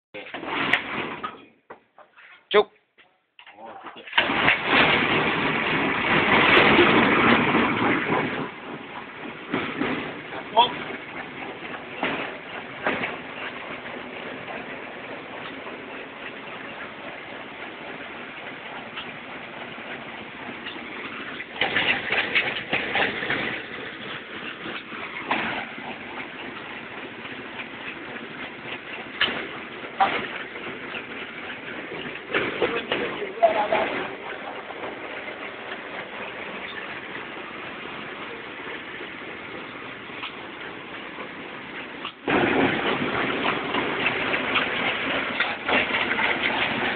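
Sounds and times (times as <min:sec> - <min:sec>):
dense rattling and crackling: 0:00.2 - 0:02.1, 0:03.4 - 0:46.9.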